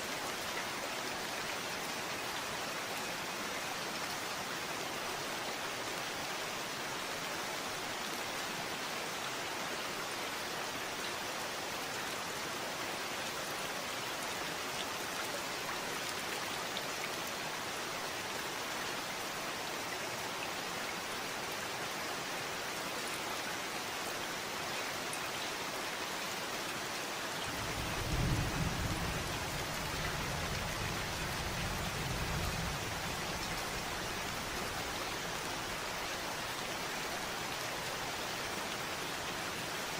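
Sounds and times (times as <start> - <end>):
steady rain falling: 0.0 - 39.9
low rumble of thunder: 27.4 - 34.5.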